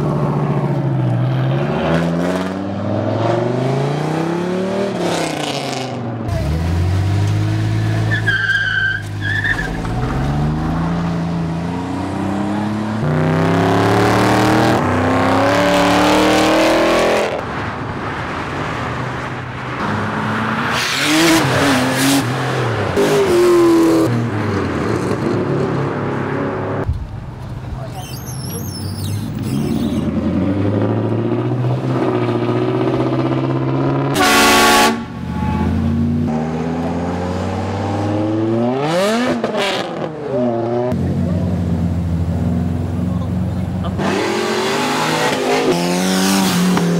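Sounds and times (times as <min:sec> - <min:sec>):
car engines revving: 0:00.0 - 0:46.9
tyre squeal: 0:07.8 - 0:10.1, 0:27.8 - 0:30.1.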